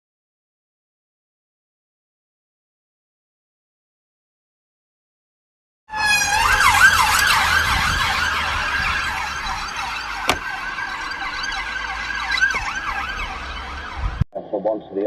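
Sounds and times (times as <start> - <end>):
siren yelping: 5.9 - 14.2.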